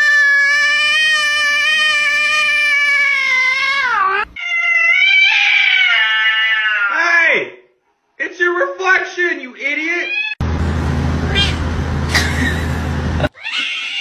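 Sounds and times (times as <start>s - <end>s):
cats yowling: 0.0s - 7.0s, 10.0s - 10.4s, 11.3s - 11.7s, 13.3s - 14.0s.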